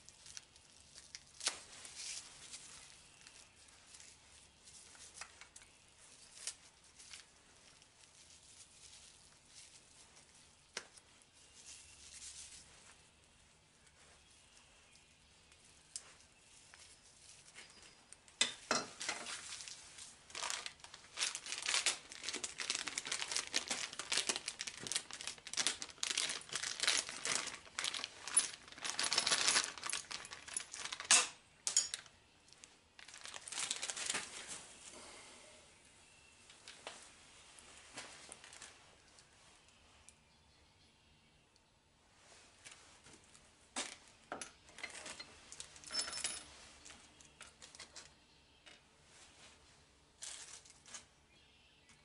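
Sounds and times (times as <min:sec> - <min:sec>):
plastic packaging crinkling and tearing: 0:00.0 - 0:12.8, 0:19.0 - 0:34.8, 0:38.2 - 0:38.8, 0:50.2 - 0:51.1.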